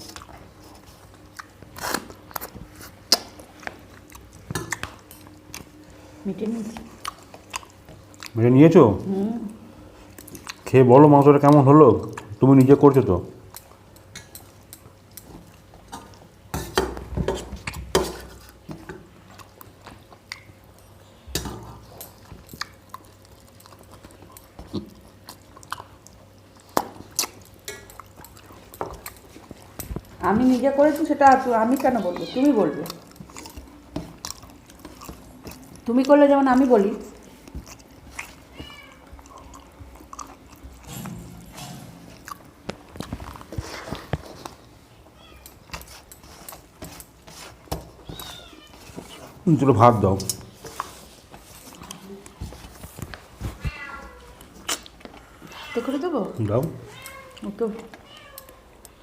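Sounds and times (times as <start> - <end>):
person chewing food: 0.0 - 59.0
mouth smacks: 54.5 - 55.2.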